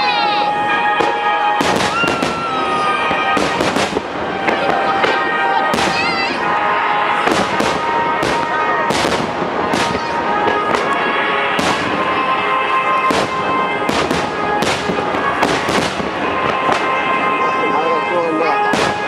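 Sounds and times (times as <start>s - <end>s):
fireworks booming: 0.0s - 19.0s
music: 0.0s - 19.0s.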